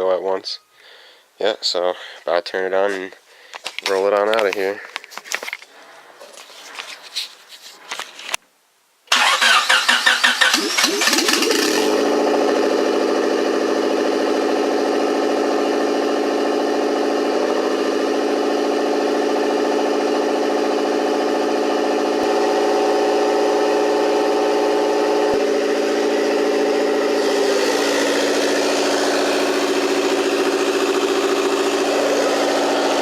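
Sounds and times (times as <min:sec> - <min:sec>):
starter motor cranking: 0:09.1 - 0:12.6, 0:25.4 - 0:33.0
car engine idling: 0:09.1 - 0:33.0.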